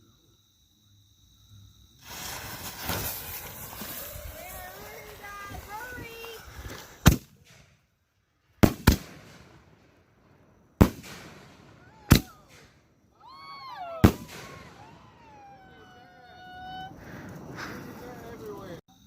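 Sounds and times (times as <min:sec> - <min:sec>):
high firework whistle: 0:02.0 - 0:07.7, 0:10.8 - 0:18.6
fireworks bangs: 0:02.0 - 0:07.9, 0:08.5 - 0:18.8.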